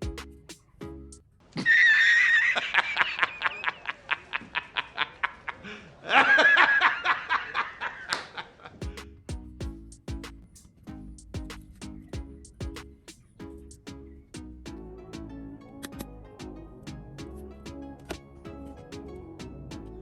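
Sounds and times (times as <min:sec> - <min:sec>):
background music: 0:00.0 - 0:01.2, 0:08.8 - 0:20.0
high-pitched giggling: 0:01.6 - 0:08.8.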